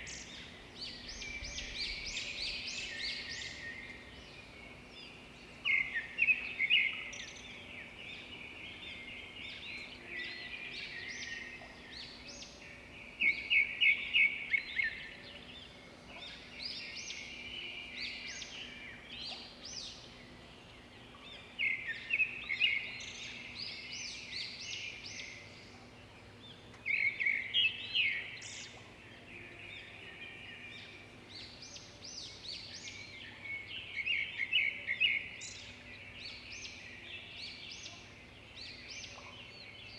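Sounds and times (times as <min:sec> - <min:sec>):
birds chirping and twittering: 0:00.0 - 0:39.9.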